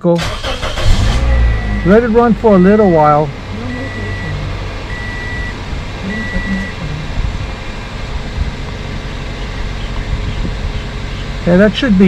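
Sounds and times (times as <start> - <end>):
car engine idling: 0.0 - 12.0
high electronic beeps: 1.4 - 7.0.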